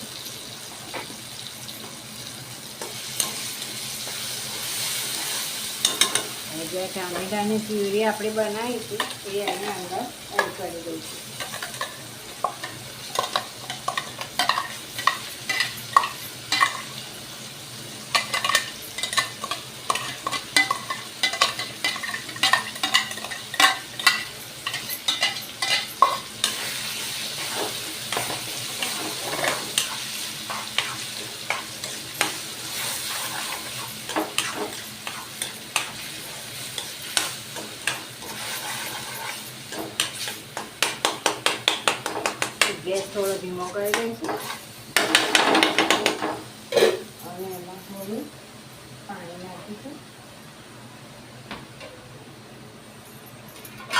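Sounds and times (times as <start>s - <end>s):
puree sizzling in hot oil: 0.0s - 49.9s
spoon scraping and tapping pan: 18.1s - 26.7s, 36.8s - 43.2s.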